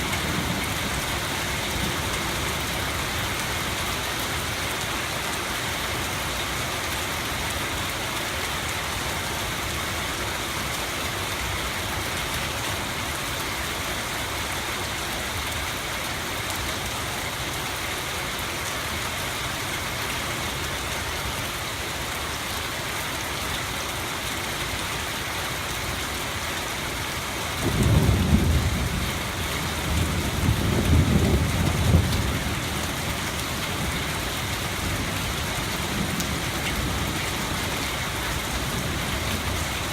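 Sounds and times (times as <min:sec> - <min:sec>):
rain hiss: 0:00.0 - 0:39.9
thunder rumble: 0:27.6 - 0:33.1.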